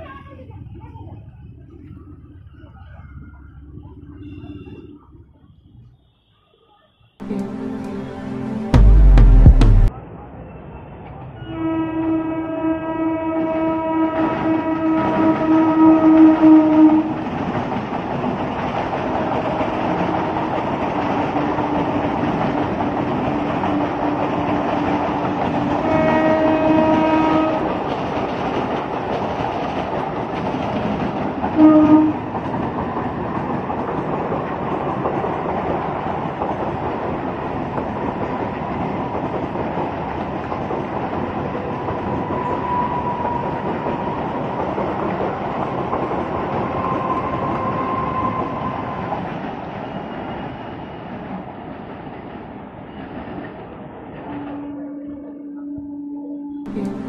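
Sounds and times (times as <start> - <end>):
train horn: 7.2 - 8.9, 11.4 - 17.2, 19.5 - 20.6, 23.3 - 27.8, 31.6 - 32.3, 54.3 - 57.0
train wheels rumbling on rails: 10.9 - 55.3, 56.6 - 57.0.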